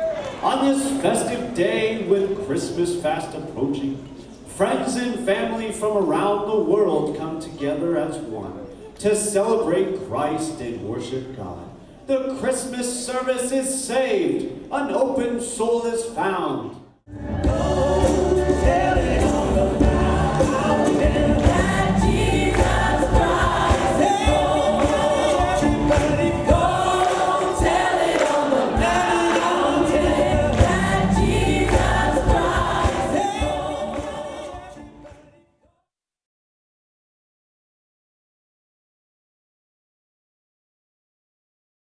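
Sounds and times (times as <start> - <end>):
instrumental backing with strong bass: 17.1 - 35.1
choir singing gospel music: 17.1 - 35.4.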